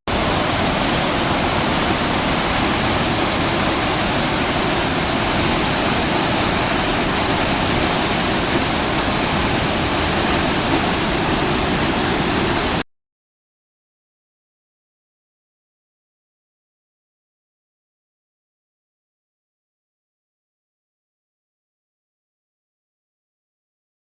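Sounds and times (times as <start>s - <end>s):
rush of falling water: 0.1s - 12.8s.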